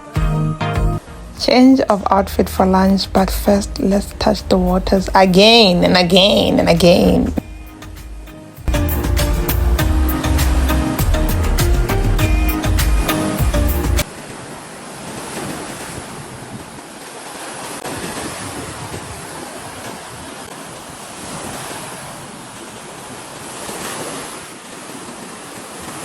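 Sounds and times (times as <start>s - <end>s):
lake waves washing onto shore: 1.5s - 26.0s
wind buffeting microphone: 14.3s - 17.0s, 17.6s - 24.4s.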